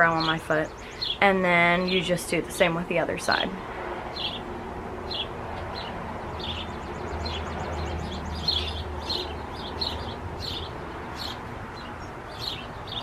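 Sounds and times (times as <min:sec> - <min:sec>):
small birds chirping: 0:00.0 - 0:03.5, 0:04.1 - 0:13.0
faint rapid bird trill: 0:05.1 - 0:13.0.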